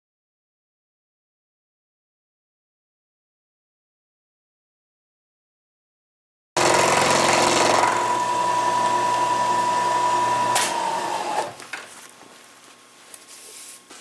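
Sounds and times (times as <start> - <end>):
milling machine whining: 6.6 - 11.6.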